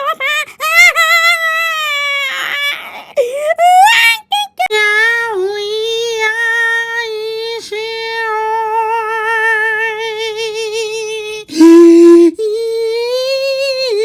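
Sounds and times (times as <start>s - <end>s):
high voice singing held note: 11.5s - 12.4s.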